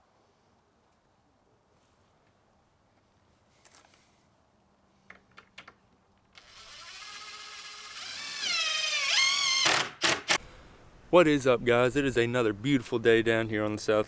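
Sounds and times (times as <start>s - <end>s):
power tool motor whining: 6.4s - 10.4s.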